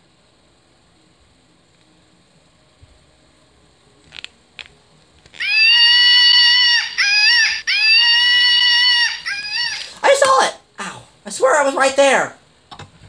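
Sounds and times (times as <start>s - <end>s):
shrill scream-like call: 5.4s - 10.1s.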